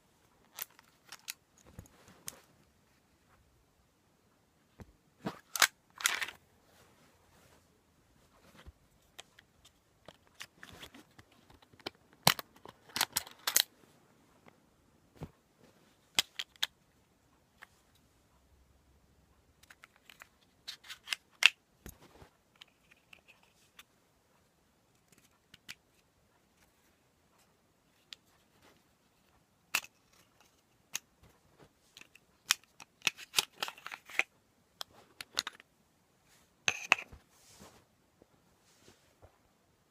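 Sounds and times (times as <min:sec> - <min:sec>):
pistol parts clicking and scraping: 0:05.5 - 0:06.4, 0:11.8 - 0:13.7, 0:32.0 - 0:35.6.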